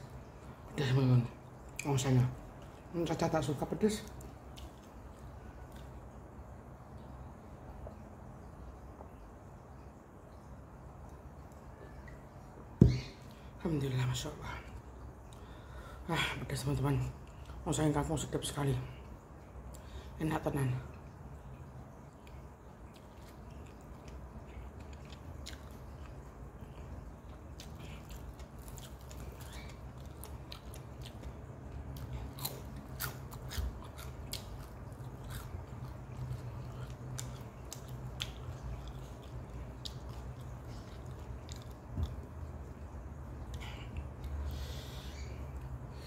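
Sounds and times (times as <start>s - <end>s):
steady low hum: 0.0s - 46.0s
person chewing noodles: 22.1s - 45.7s.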